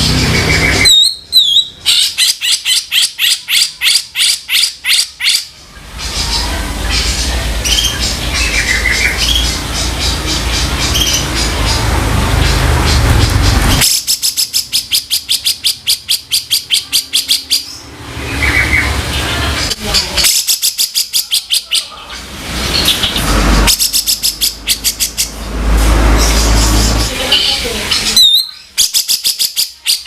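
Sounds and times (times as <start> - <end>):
bird harsh rattling calls: 0.0 - 18.9
low rumbling noise: 5.5 - 14.1, 21.9 - 28.2.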